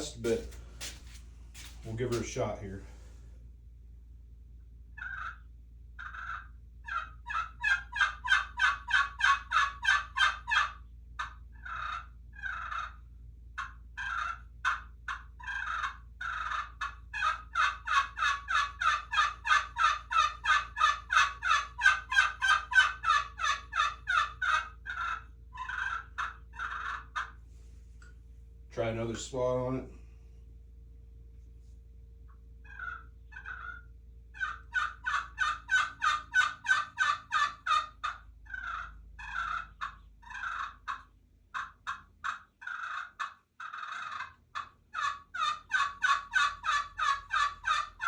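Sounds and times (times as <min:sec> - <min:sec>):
turkey pot call notes: 0:13.6 - 0:27.3, 0:34.4 - 0:48.0.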